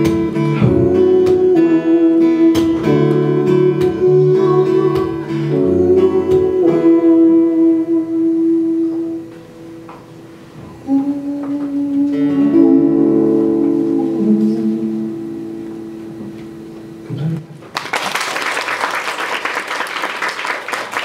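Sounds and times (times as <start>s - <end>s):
acoustic guitar chords: 0.0s - 17.7s.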